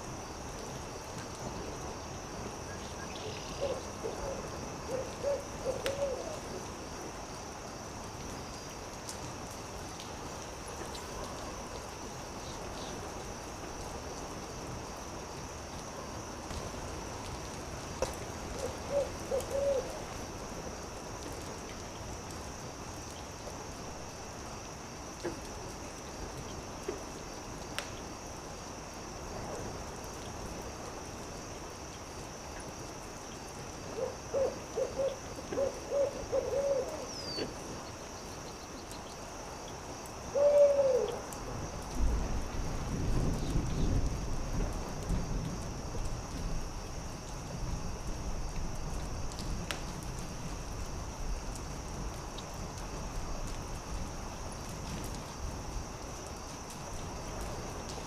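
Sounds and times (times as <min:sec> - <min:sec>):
crackling campfire: 0:00.0 - 0:40.4, 0:41.0 - 0:58.0
owl hooting: 0:03.3 - 0:06.4, 0:18.6 - 0:20.0, 0:34.0 - 0:37.5, 0:40.3 - 0:41.2.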